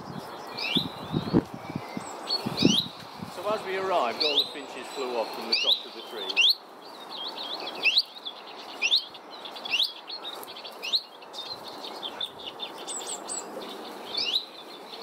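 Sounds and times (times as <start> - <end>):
rising bird chirp: 0.0 - 15.0
songbirds twittering: 0.0 - 15.0.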